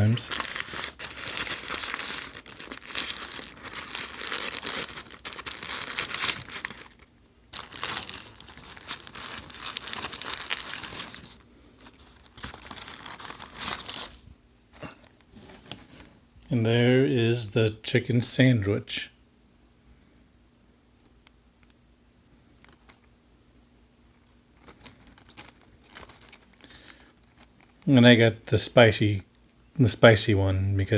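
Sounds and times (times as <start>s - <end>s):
paper wrapper crinkling and tearing: 0.0s - 14.3s, 24.1s - 27.9s.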